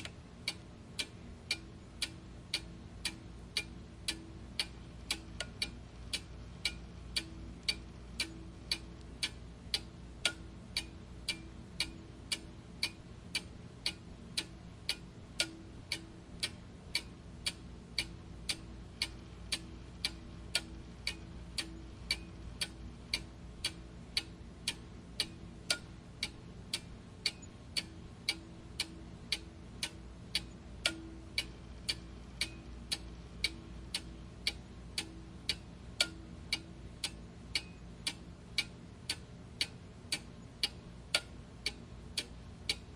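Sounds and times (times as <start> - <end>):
clock ticking: 0.0 - 42.9
faint low hum: 0.0 - 42.9.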